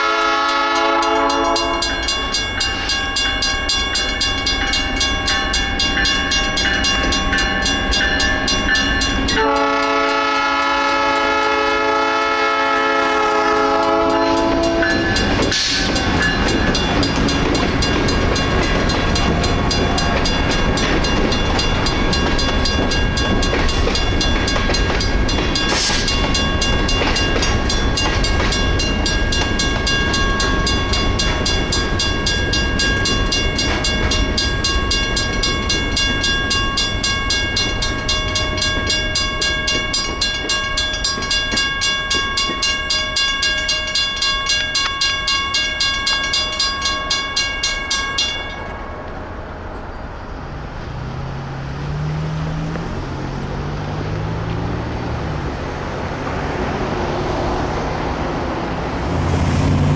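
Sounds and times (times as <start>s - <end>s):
train horn: 0.0s - 2.1s, 9.3s - 16.0s
crossing bell ringing: 0.0s - 59.9s
train rumbling past: 0.0s - 59.9s.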